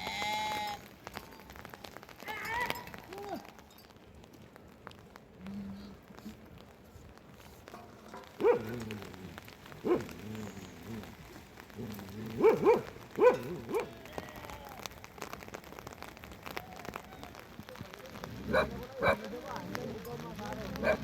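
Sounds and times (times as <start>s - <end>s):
rain pattering: 0.0s - 21.0s
dog barking: 8.4s - 8.9s, 9.8s - 10.2s, 12.3s - 14.0s, 18.5s - 19.3s, 20.8s - 21.0s.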